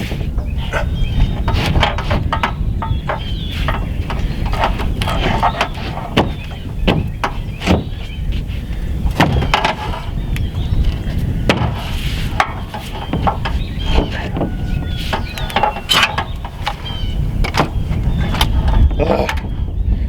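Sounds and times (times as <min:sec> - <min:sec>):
hammer nailing panels: 0:01.4 - 0:08.0, 0:09.1 - 0:10.1, 0:11.5 - 0:16.8.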